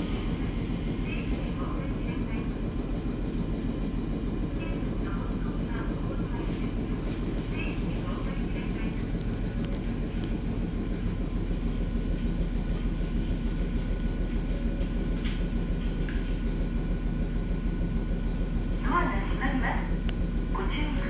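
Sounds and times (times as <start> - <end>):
electric train rumbling: 0.0 - 21.0
faint steady whine: 16.5 - 21.0.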